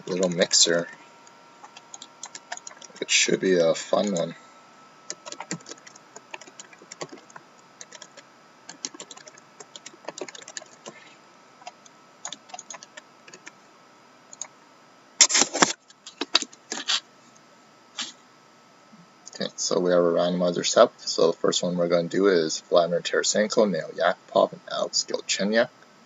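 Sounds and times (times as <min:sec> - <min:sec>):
typing on computer keyboard: 0:01.7 - 0:03.0, 0:04.0 - 0:04.3, 0:05.1 - 0:11.0, 0:11.6 - 0:13.5.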